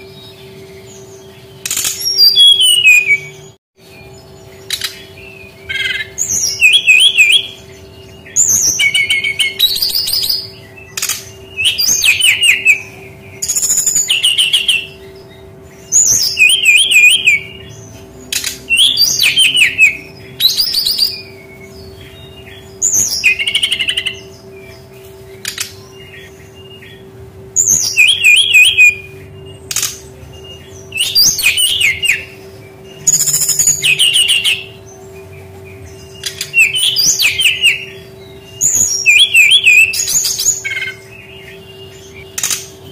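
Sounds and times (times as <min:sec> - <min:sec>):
bird singing high warbling trills: 0:00.0 - 0:42.9
faint steady hum: 0:00.0 - 0:42.9.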